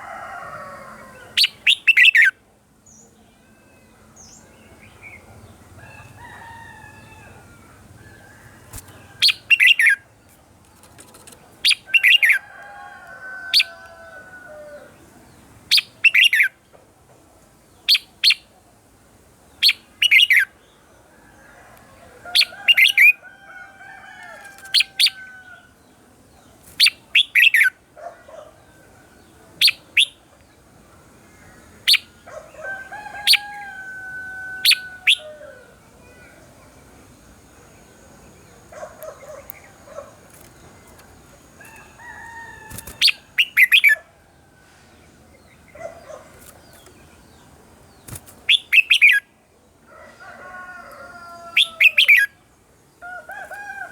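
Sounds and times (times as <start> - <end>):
bird singing bright phrases: 37.6 - 44.0, 45.3 - 49.3.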